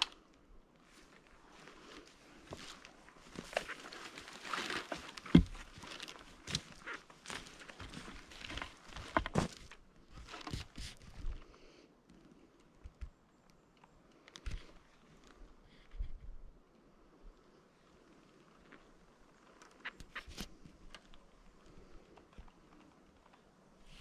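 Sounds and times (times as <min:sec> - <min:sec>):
footsteps on forest floor litter: 0:00.9 - 0:11.4.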